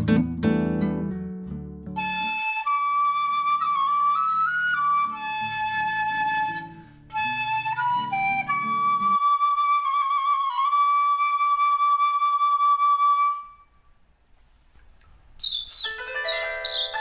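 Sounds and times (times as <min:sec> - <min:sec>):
flute long high note: 0:02.0 - 0:13.7.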